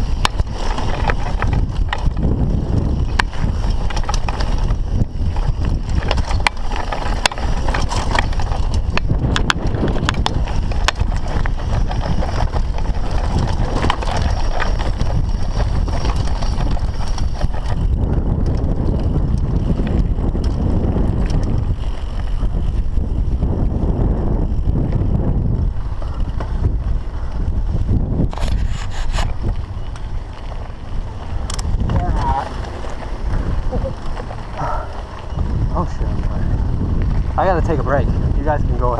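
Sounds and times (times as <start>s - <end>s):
bike knocks and rattles: 0.0s - 38.9s
bike tyres rumbling over rocks: 0.0s - 38.9s
wind on microphone: 0.0s - 38.9s.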